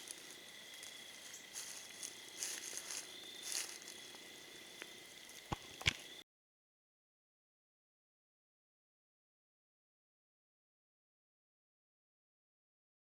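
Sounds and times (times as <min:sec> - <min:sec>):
high insect drone: 0:00.0 - 0:06.2
rustling of brush: 0:00.0 - 0:06.2.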